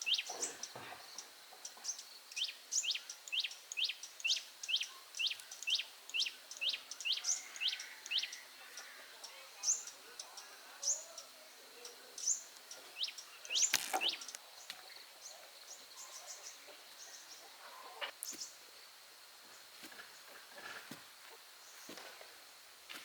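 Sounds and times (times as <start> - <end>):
birds chirping: 2.3 - 18.5.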